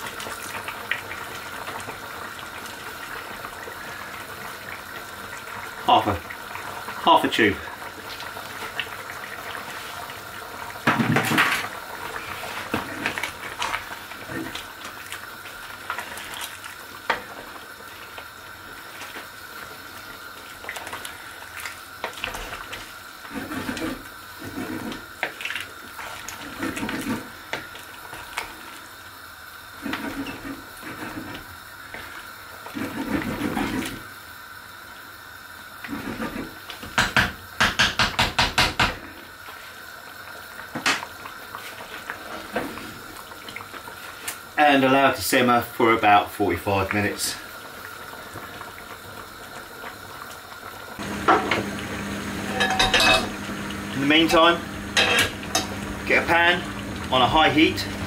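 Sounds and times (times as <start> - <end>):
stew bubbling and sloshing: 0.0 - 34.4, 35.7 - 37.0, 39.0 - 45.5, 46.8 - 51.1
spoon knocking against pot: 37.0 - 39.0.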